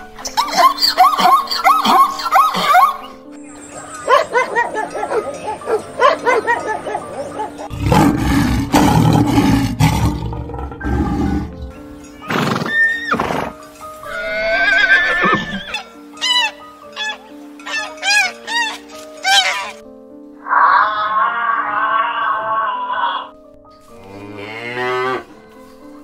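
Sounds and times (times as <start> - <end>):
background music: 0.0 - 26.0
dog barking: 4.1 - 7.6
deep rough growl: 7.7 - 11.6
long wavering animal calls: 20.4 - 23.4.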